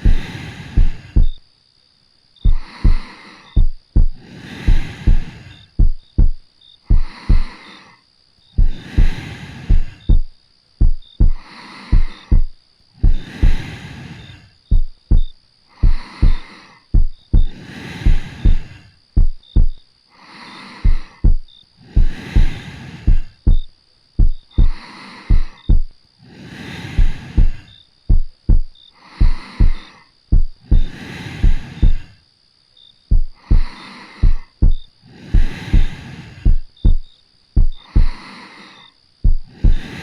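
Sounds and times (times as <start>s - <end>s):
heartbeat double thump: 0.0s - 1.4s, 2.4s - 3.0s, 3.6s - 7.5s, 8.6s - 13.6s, 14.7s - 19.8s, 20.8s - 25.9s, 27.0s - 32.1s, 33.1s - 38.2s, 39.2s - 39.9s
soft breathing: 0.0s - 1.5s, 2.4s - 32.4s, 33.1s - 40.0s.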